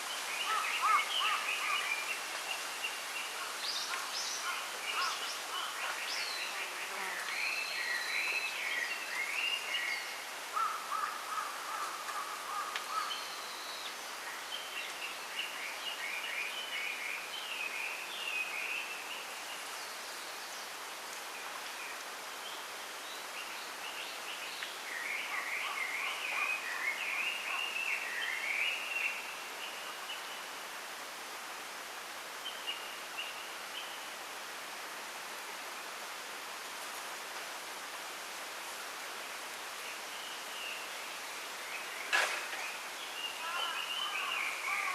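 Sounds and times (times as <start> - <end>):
wind rustling bamboo: 0.0 - 44.9
songbirds warbling: 40.6 - 44.9.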